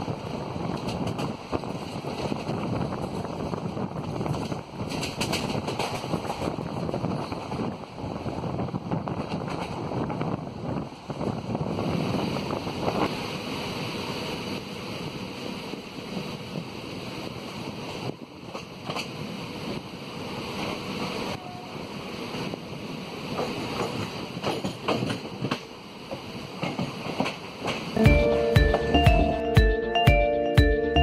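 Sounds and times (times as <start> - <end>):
wind on microphone: 0.0 - 20.0
train wheels rumbling on rails: 0.0 - 29.5
wheels clattering over rail joints: 0.1 - 7.7, 23.3 - 28.0.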